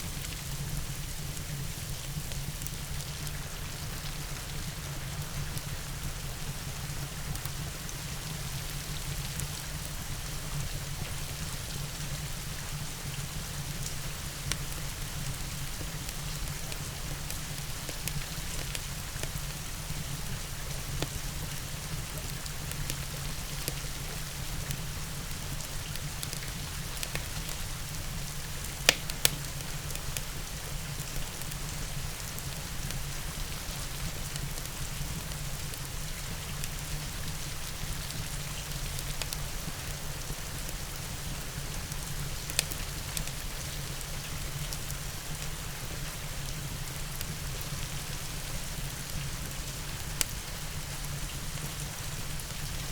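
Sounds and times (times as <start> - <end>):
rain hiss: 0.0 - 52.9
wood fire crackling: 13.7 - 46.0.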